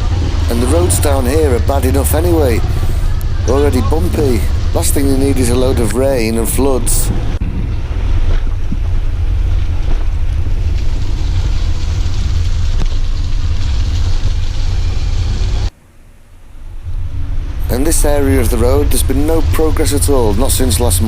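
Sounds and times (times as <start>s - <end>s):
wind buffeting microphone: 0.0s - 15.7s
electric tricycle rumbling: 0.0s - 21.0s.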